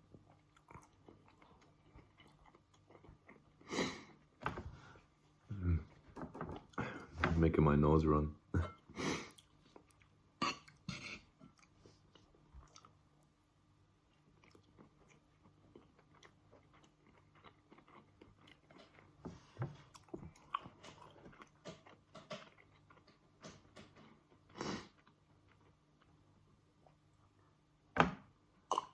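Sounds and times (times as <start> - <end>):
person chewing: 0.0 - 4.4, 9.1 - 13.3, 14.0 - 27.4.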